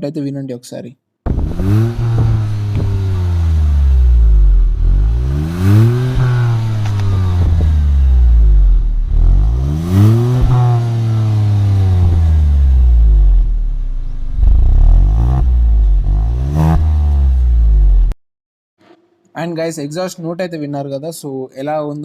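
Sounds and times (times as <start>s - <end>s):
car engine revving: 1.3s - 18.2s.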